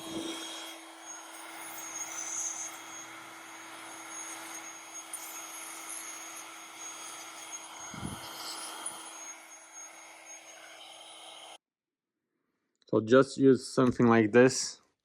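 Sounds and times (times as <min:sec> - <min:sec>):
air blower rushing: 0:00.0 - 0:11.6
steady hum: 0:00.0 - 0:11.6.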